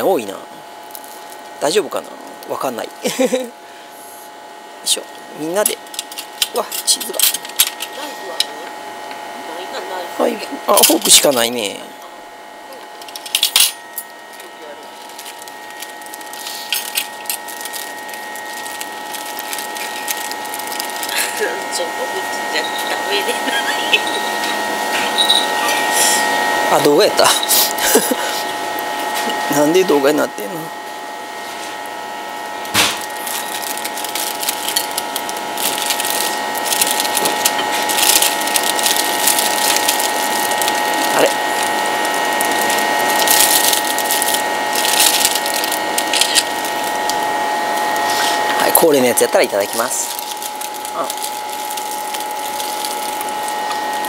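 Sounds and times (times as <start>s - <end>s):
steady high hum: 0.0s - 54.0s
chewing and crunching pizza: 14.8s - 21.6s, 32.9s - 49.0s, 49.6s - 54.0s.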